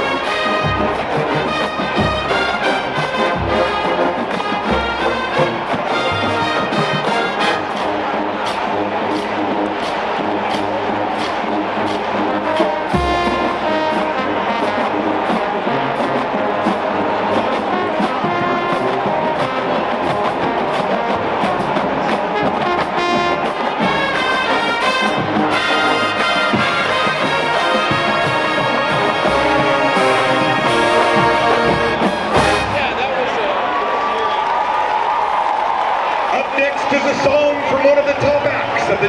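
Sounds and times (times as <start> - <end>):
trombones and trumpets playing: 0.0 - 33.3
drum line beat: 0.0 - 33.4.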